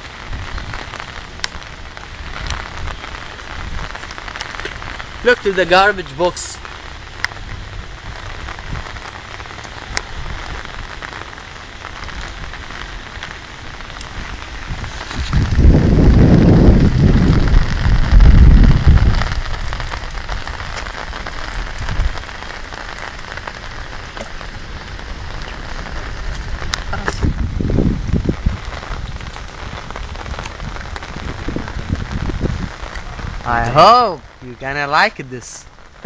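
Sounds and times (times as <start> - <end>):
heavy rain falling: 0.0 - 36.0
loud low rumble: 14.6 - 19.8.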